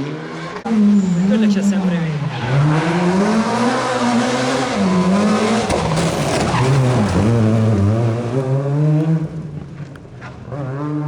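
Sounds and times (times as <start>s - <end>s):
rally car engine revving: 0.0s - 11.0s
tyre noise sliding: 3.8s - 10.6s.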